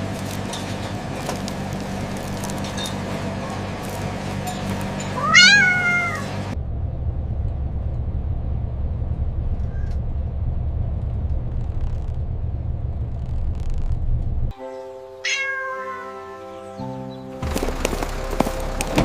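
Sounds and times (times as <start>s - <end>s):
steady low rumble: 0.0s - 14.6s, 17.4s - 19.0s
cat meowing: 5.1s - 6.4s, 15.2s - 16.6s.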